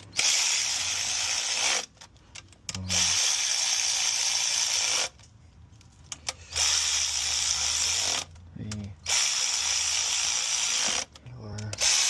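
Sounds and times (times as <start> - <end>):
rapid ratcheting: 6.2 - 12.0
short ratchet clicks: 6.2 - 12.0.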